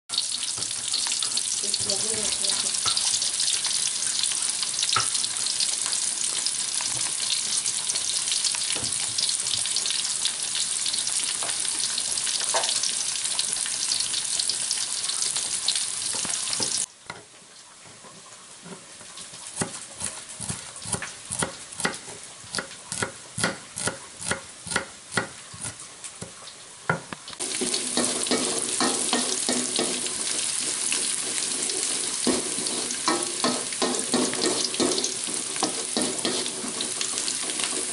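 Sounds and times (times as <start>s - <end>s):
vegetables sizzling in hot oil: 0.1s - 16.9s, 18.5s - 37.9s
wooden spatula stirring in wok: 27.4s - 37.9s.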